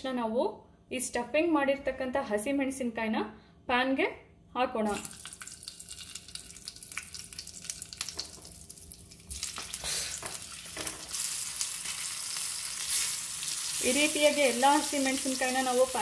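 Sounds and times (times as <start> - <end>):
chillies sizzling in hot oil: 4.9 - 16.0.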